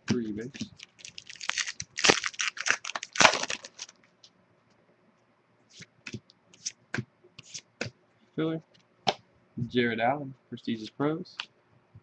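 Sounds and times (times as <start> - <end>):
foil wrapper tearing and crinkling: 0.1 - 4.0.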